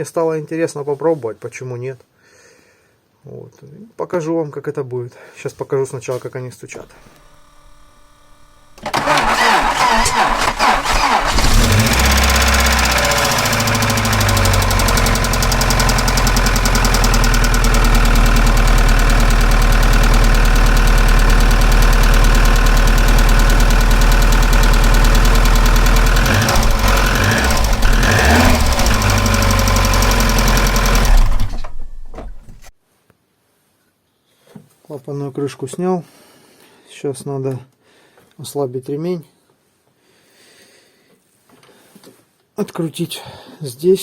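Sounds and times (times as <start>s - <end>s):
car engine running: 7.0s - 32.7s
rapid lifter clatter: 8.8s - 32.7s.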